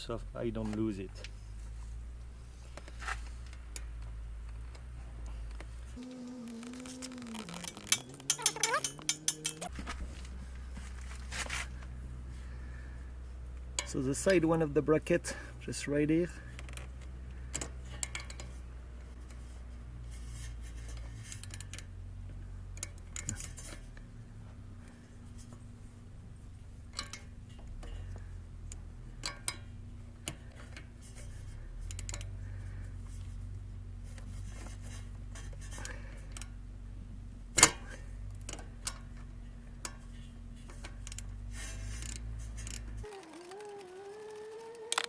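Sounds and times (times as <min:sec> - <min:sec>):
metallic clicks of hand tools: 0:06.2 - 0:09.7, 0:31.9 - 0:32.3.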